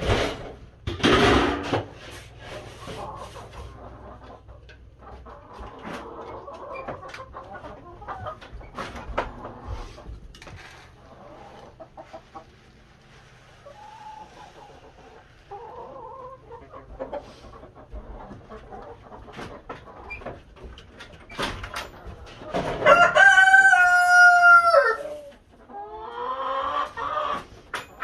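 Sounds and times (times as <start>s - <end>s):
sharp knocks and clatters: 0.0s - 2.4s
chickens clucking: 0.0s - 28.0s.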